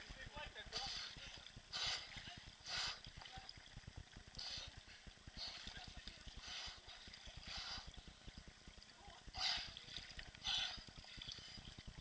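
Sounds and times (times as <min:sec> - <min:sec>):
faint water splashing: 0:00.0 - 0:12.0.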